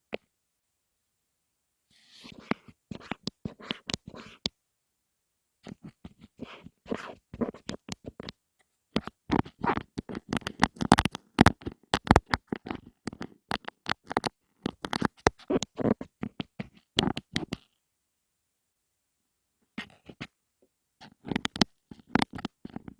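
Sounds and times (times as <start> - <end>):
scratching on an object: 1.9 - 4.5, 5.6 - 17.7, 19.8 - 20.3, 21.0 - 22.9.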